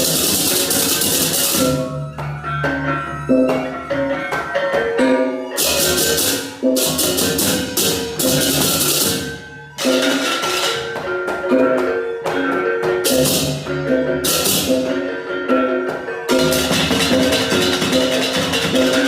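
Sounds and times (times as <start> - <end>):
drums: 0.0 - 1.9, 5.6 - 19.0.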